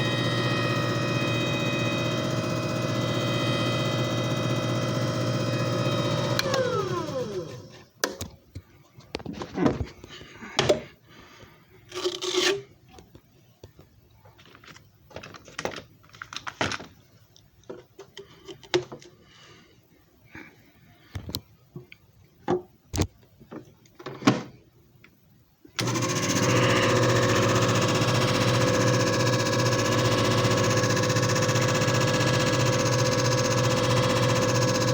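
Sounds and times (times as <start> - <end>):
machine motor spinning down: 0.0 - 7.8, 25.8 - 34.9.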